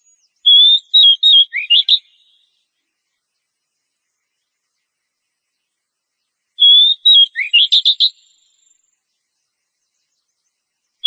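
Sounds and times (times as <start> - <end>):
bird singing whistled phrase: 0.0 - 2.5, 6.6 - 8.8.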